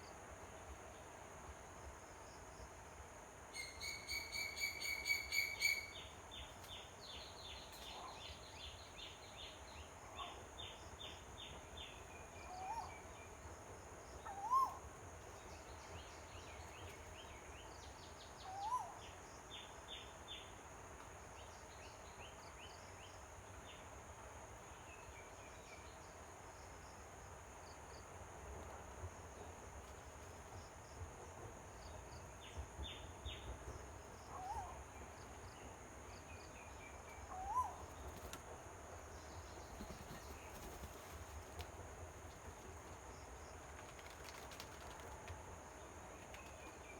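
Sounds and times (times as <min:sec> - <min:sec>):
insect drone: 0:00.1 - 0:07.6.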